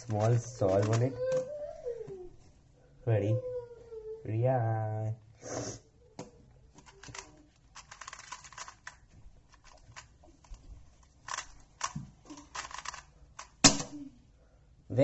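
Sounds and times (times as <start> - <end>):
speed cube layers clicking: 0.0 - 1.2, 6.8 - 10.6, 11.2 - 13.6.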